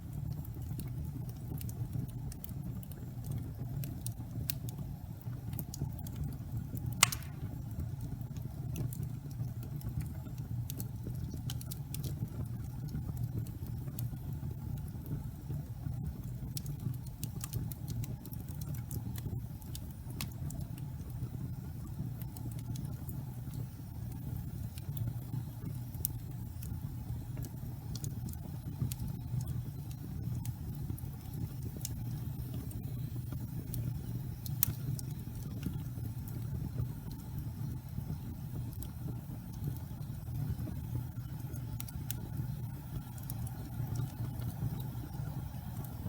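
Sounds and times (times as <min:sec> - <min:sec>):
fire crackling: 0:00.0 - 0:46.0
fire flames rumbling: 0:00.0 - 0:46.0
loud sharp pop of fire: 0:07.0 - 0:07.7.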